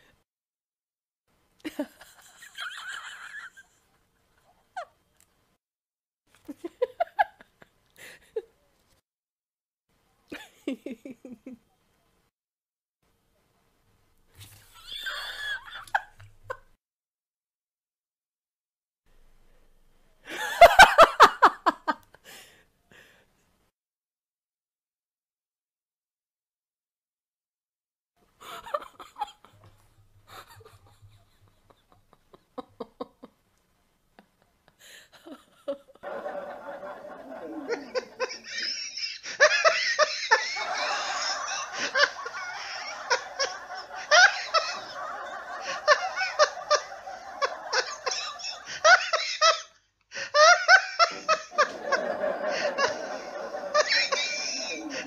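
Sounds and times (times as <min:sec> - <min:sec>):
man laughing: 0:35.2 - 0:55.0.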